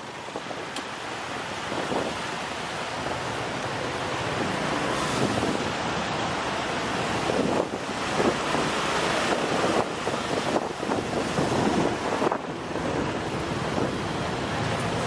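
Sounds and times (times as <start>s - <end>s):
road and traffic noise: 0.0s - 15.0s
wind rushing over microphone: 1.6s - 2.5s, 4.3s - 14.6s.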